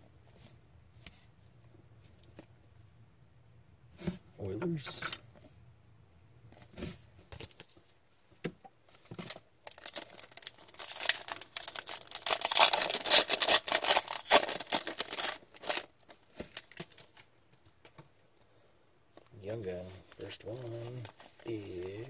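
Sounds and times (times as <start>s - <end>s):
wrapper crinkling and tearing: 9.2s - 17.3s.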